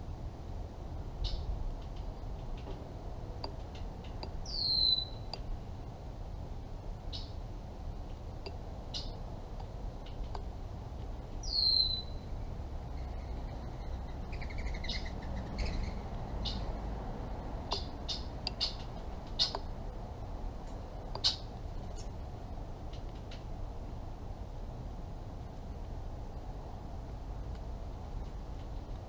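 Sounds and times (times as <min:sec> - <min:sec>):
birds chirping: 0:03.4 - 0:05.5, 0:11.4 - 0:16.9, 0:17.7 - 0:19.7, 0:21.1 - 0:22.1
rapid bird trill: 0:04.4 - 0:05.3, 0:11.4 - 0:12.3, 0:17.7 - 0:19.7.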